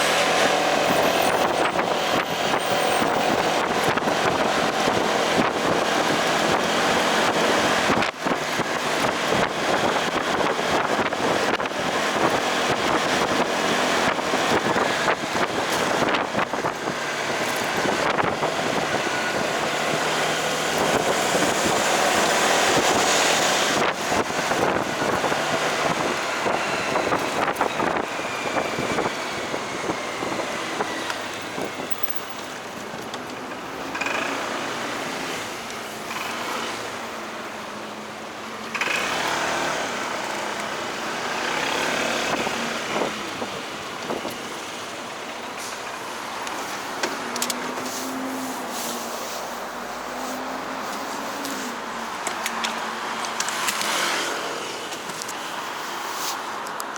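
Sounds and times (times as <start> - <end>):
motorcycle engine and road noise: 0.0 - 56.9
wind buffeting microphone: 0.1 - 32.0.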